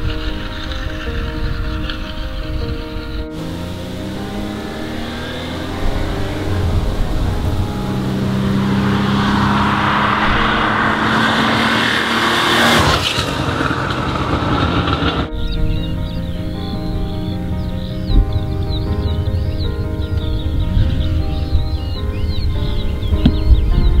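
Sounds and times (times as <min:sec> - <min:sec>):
car engine accelerating: 0:03.0 - 0:23.5.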